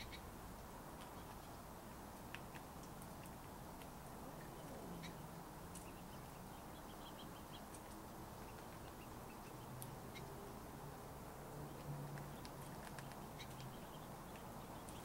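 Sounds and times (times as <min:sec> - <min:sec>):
low steady hum: 0:00.0 - 0:15.0
small bird chirps: 0:11.7 - 0:15.0.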